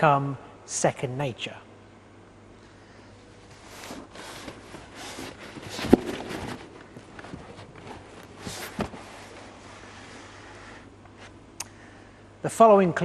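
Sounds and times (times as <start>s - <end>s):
knocks and shuffling: 3.4s - 10.3s.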